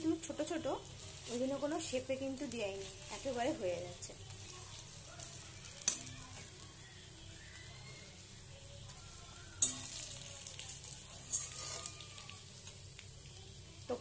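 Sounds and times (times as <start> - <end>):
fritters sizzling in hot oil: 0.0 - 14.0
metal spatula scraping a pan: 0.4 - 6.6, 7.9 - 12.8.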